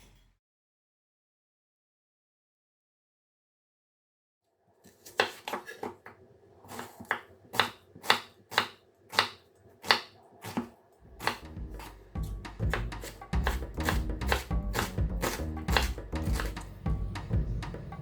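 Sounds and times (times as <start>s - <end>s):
low background music: 11.1s - 18.0s.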